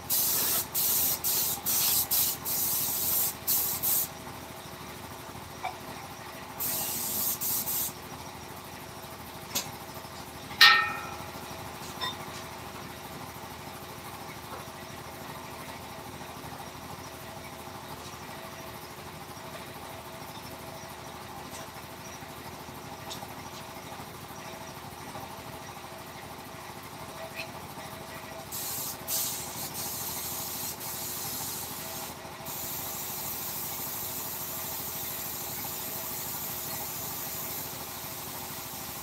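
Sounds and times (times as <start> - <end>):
hissing spray bursts: 0.0 - 4.1, 6.6 - 8.0, 28.5 - 39.0
hard object clinking: 10.6 - 11.3.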